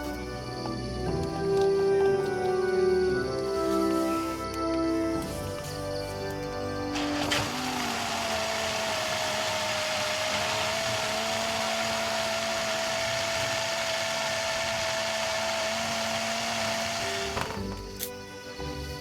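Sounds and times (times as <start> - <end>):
electric blender whine: 6.8 - 18.0.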